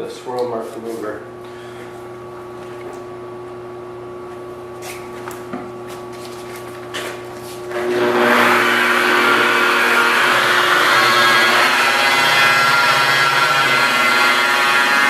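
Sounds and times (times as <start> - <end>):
car polishing buffer whirring: 7.7 - 15.0.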